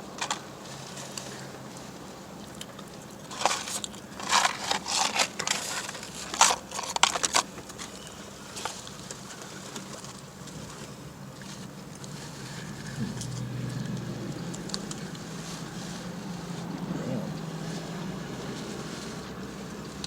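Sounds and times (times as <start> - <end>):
paper packaging crinkling: 3.1 - 10.4
low steady hum: 7.8 - 20.0.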